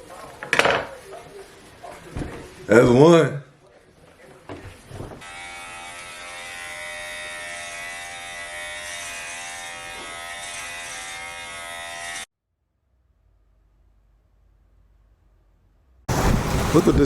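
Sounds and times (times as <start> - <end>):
electric hair clippers buzzing: 5.2 - 12.3.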